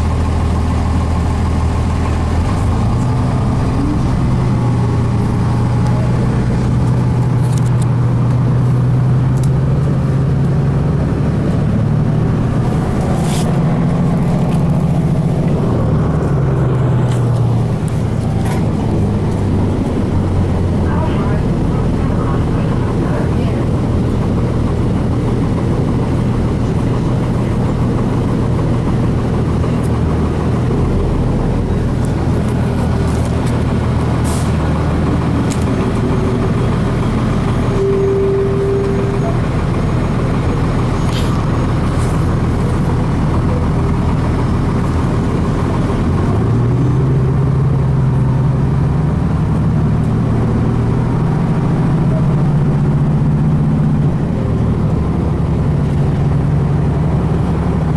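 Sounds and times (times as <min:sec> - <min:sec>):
bus diesel engine running: 0:00.0 - 0:57.9
short tone: 0:37.7 - 0:39.7.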